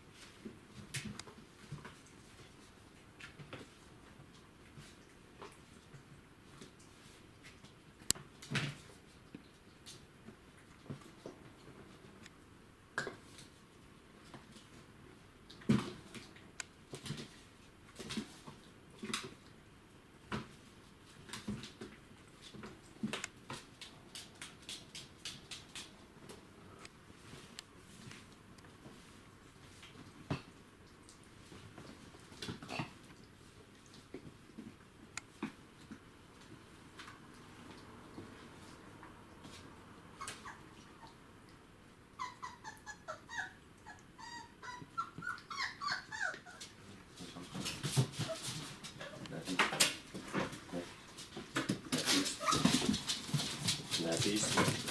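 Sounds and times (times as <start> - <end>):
puppies' paws clicking and tapping: 20.3 - 26.4, 44.2 - 54.9
puppies whining: 40.2 - 41.2, 42.1 - 46.8, 52.1 - 53.0.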